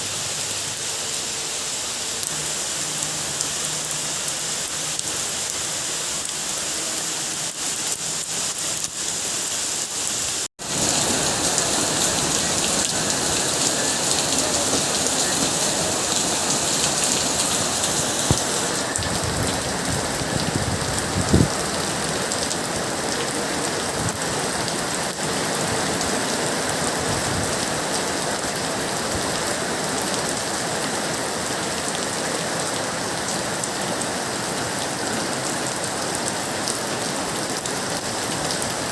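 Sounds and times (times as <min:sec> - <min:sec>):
rain pattering on surfaces: 0:00.0 - 0:38.9.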